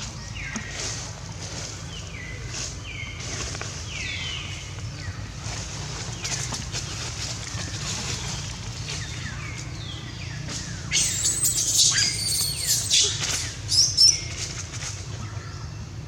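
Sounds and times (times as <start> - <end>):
high-pitched animal squeals: 11.0 - 13.1.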